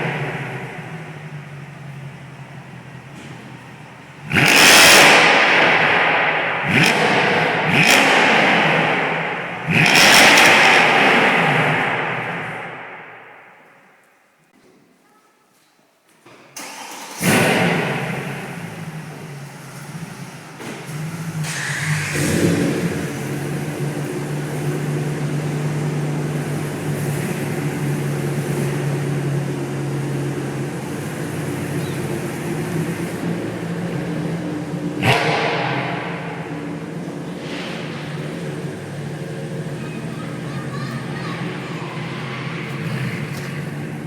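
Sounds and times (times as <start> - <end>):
car engine revving: 0.0 - 13.7, 16.6 - 44.0.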